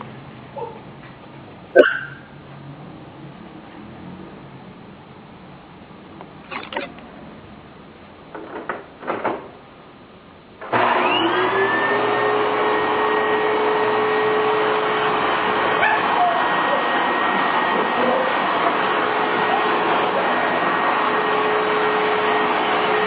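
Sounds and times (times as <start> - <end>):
vacuum cleaner motor running: 10.7 - 23.0.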